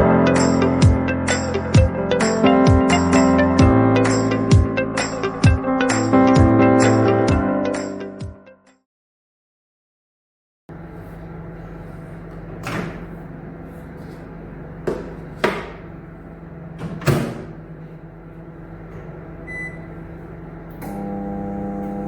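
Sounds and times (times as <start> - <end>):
buzzing mains hum: 10.7 - 22.0.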